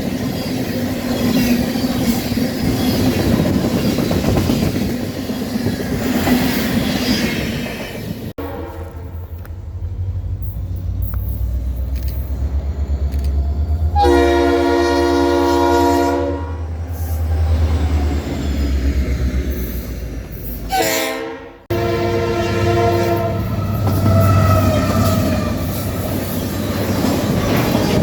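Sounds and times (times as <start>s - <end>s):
diesel locomotive rumbling: 0.0s - 28.0s.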